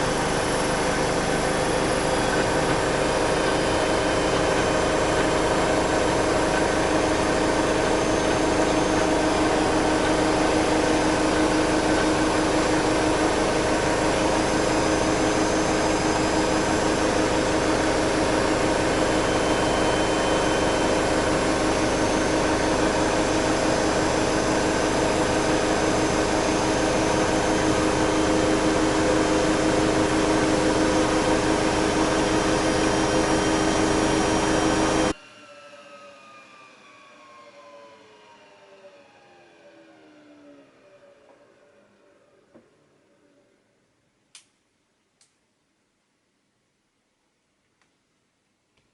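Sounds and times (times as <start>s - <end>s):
washing machine spinning: 0.0s - 35.2s.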